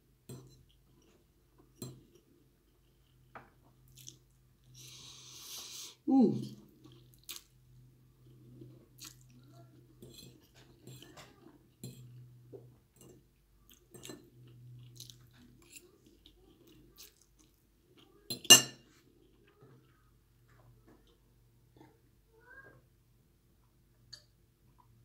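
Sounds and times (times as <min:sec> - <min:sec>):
person chewing: 0:02.8 - 0:11.1, 0:13.6 - 0:18.2.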